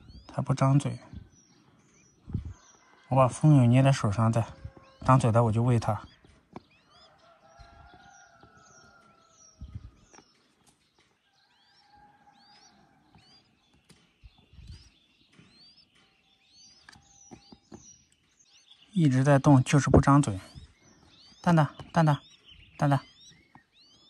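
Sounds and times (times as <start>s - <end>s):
small birds chirping: 0.0s - 24.0s
soft low thumps: 1.0s - 1.4s, 2.2s - 2.6s, 9.5s - 10.2s, 14.2s - 16.0s.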